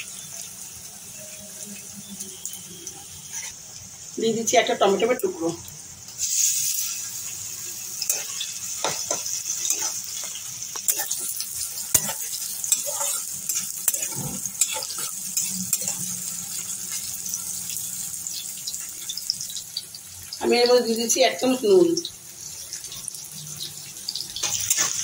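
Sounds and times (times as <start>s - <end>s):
onion and tomato sizzling in oil: 0.0s - 25.0s
spatula knocking and scraping pan: 8.1s - 15.1s.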